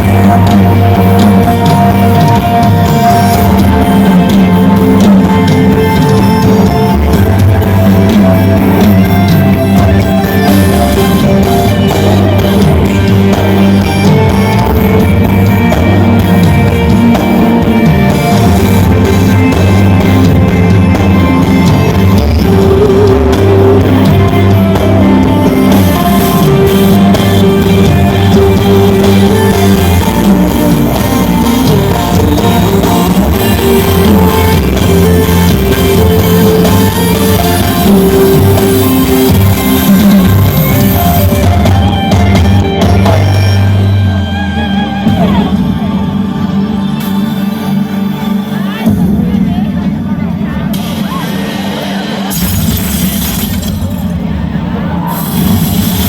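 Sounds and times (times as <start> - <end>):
person singing: 0.0 - 41.1
live band music: 0.0 - 56.0.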